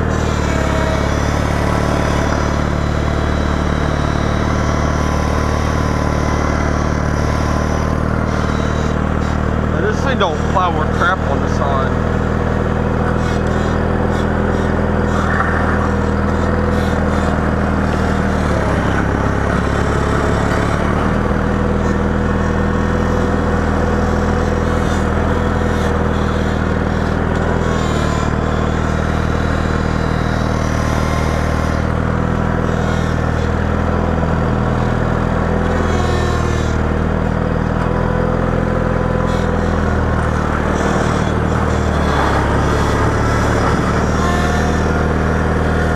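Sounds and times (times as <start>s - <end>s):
vehicle engine running under load: 0.0s - 45.9s.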